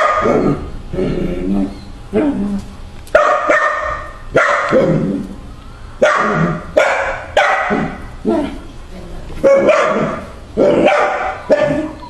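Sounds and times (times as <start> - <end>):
dog barking: 0.0 - 0.4, 3.2 - 4.8, 6.0 - 8.0, 9.4 - 12.0.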